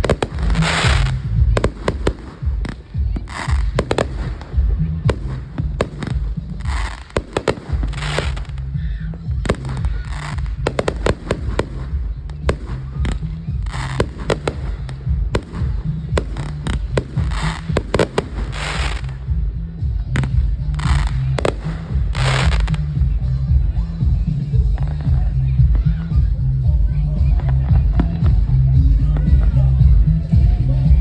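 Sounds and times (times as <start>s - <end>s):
fireworks bangs: 0.0s - 19.3s, 20.2s - 23.0s
fireworks crackling: 0.0s - 23.4s
low rumble: 0.0s - 31.0s.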